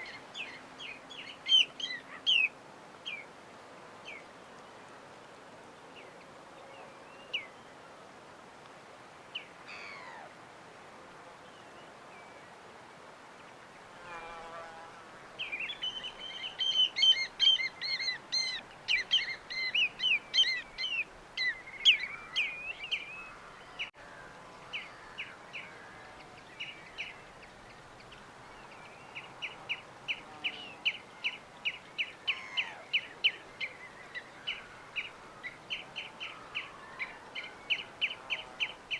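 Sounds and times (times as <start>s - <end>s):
faint surf: 0.0s - 38.9s
birds chirping: 15.4s - 24.0s.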